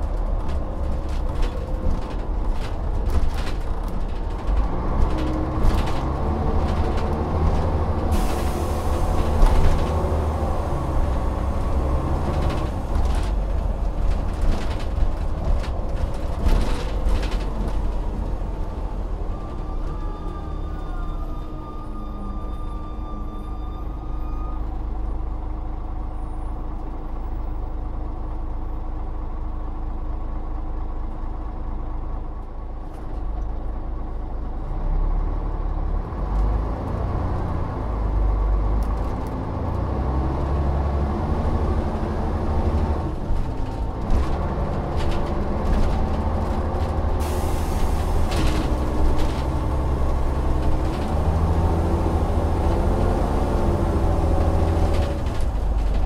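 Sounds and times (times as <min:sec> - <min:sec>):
bus engine revving: 0:00.0 - 0:20.0, 0:34.8 - 0:56.0.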